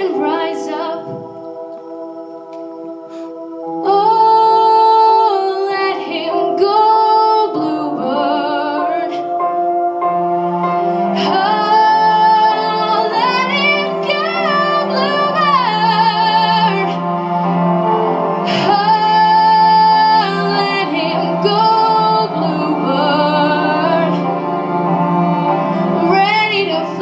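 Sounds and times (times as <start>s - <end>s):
woman singing a slow song: 0.0s - 2.8s, 3.6s - 9.4s, 11.2s - 17.0s, 26.0s - 27.0s
sustained musical accompaniment: 0.0s - 27.0s.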